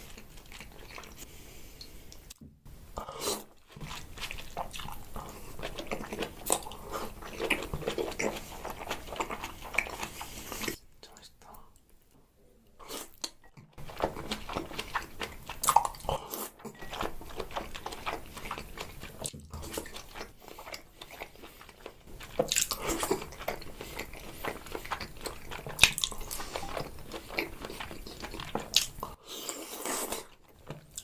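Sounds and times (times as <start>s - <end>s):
chewing with mouth clicks: 0.0s - 2.4s, 3.2s - 11.9s, 12.8s - 31.0s.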